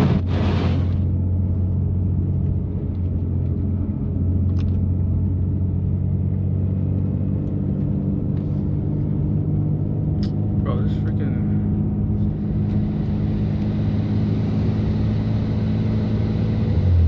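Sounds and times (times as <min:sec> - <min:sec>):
car engine droning at low revs: 0:00.0 - 0:17.0.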